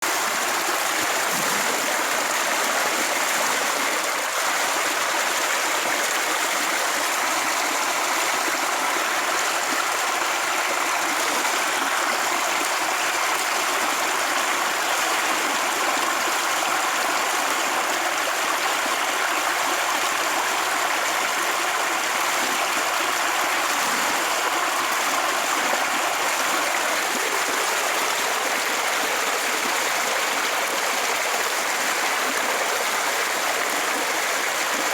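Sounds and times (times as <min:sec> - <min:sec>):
rushing water: 0:00.0 - 0:34.9.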